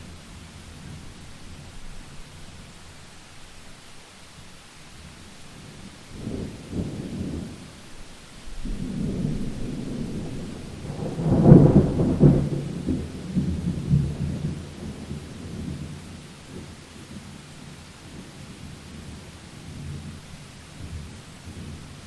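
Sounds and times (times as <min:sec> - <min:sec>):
rain hissing: 0:00.0 - 0:22.0
thunder rumbling: 0:05.6 - 0:17.1.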